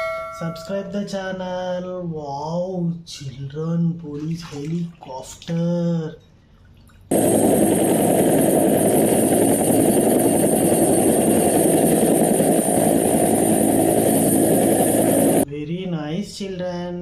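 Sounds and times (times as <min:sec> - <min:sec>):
helicopter engine and rotor rumble: 0:07.1 - 0:15.4
high whine: 0:07.1 - 0:15.4.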